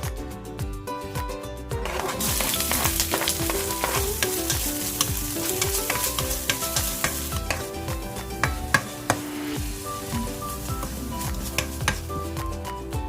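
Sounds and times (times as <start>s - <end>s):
background music with beat: 0.0s - 13.0s
utensil clicking against pan: 1.8s - 9.2s, 10.8s - 12.2s
food sizzling in a pan: 1.8s - 12.4s.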